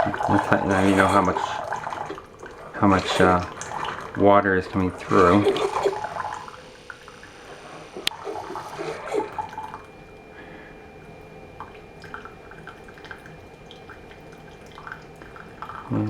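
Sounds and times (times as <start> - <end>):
coffee maker water dripping: 0.0 - 16.0.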